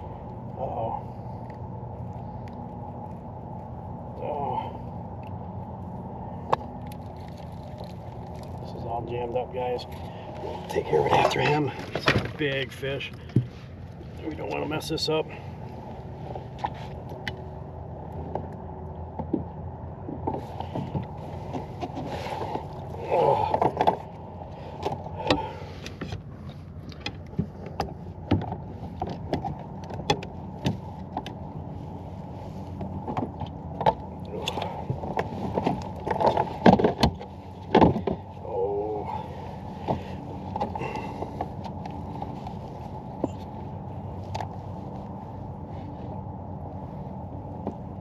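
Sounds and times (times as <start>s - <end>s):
clicks and knocks on a kayak: 13.1s - 13.5s, 18.2s - 31.4s, 32.8s - 38.4s.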